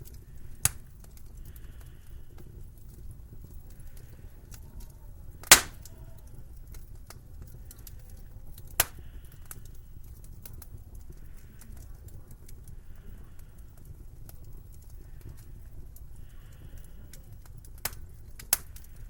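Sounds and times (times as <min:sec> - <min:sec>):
sharp fire pops: 0:00.0 - 0:01.4, 0:05.4 - 0:06.0, 0:08.6 - 0:09.8
wood fire crackling: 0:00.0 - 0:19.0.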